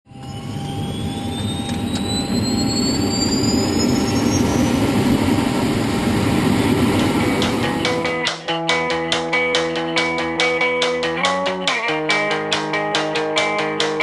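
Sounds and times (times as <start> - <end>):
falling high whine: 0.0 - 8.2
rising high whine: 0.0 - 8.2
helicopter turbine engine rushing: 0.1 - 8.2.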